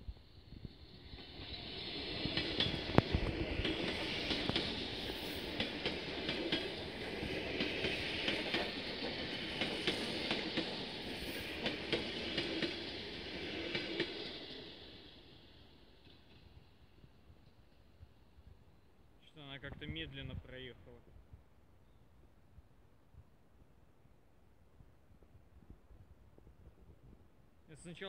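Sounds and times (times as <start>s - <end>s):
train wheels rumbling on rails: 0.6s - 15.4s
wheels clicking over rail joints: 2.2s - 7.0s.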